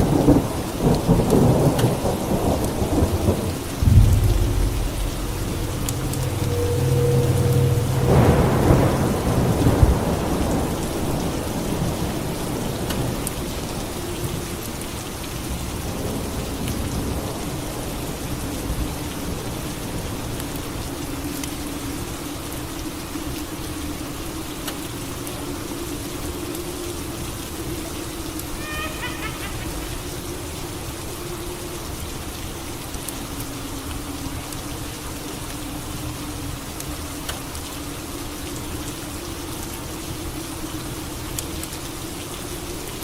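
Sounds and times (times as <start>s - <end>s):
steady rain: 0.0s - 43.0s
thunder rumbling: 0.1s - 13.2s.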